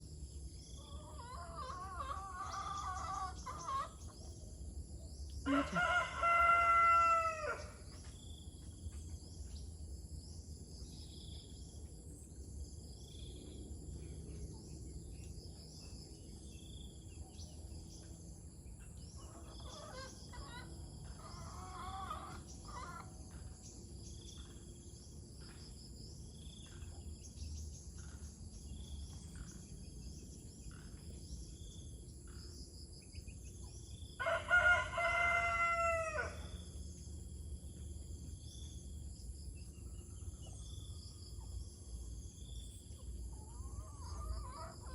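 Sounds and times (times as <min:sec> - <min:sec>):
rooster crowing: 0:05.5 - 0:07.8, 0:21.1 - 0:23.0, 0:34.2 - 0:36.6.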